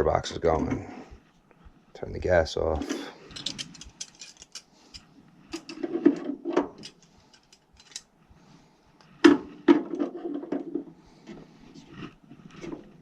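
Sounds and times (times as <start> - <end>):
hand tools and metal parts rattling: 2.8 - 8.2.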